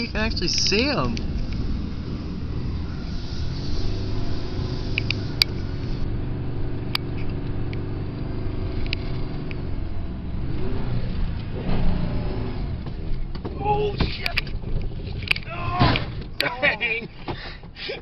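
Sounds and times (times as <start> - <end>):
pickup truck engine running: 0.0 - 15.5.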